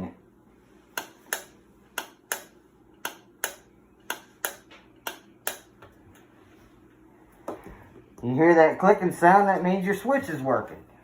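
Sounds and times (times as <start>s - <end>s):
pressure switch clicking: 1.0s - 5.7s.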